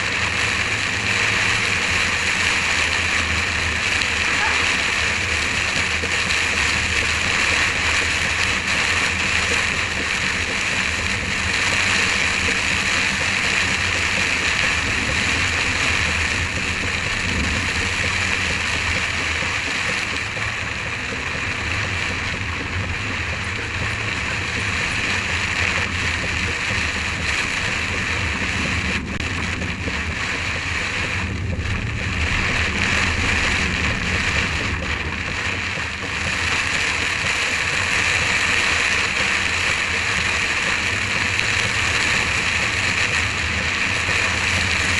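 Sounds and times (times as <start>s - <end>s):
low rumble of moving car: 0.0s - 44.9s
rain hitting car windscreen: 0.0s - 44.9s.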